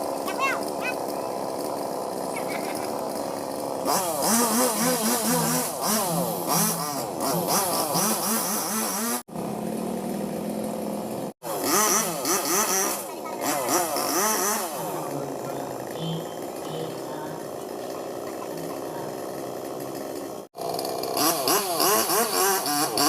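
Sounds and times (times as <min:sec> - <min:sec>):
chainsaw engine revving: 0:00.0 - 0:23.0.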